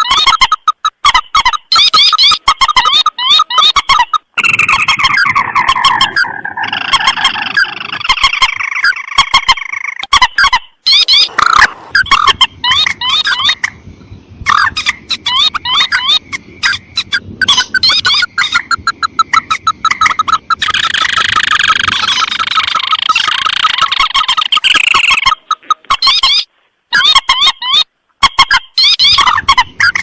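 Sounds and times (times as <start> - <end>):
rail bird calls: 0.0 - 30.0.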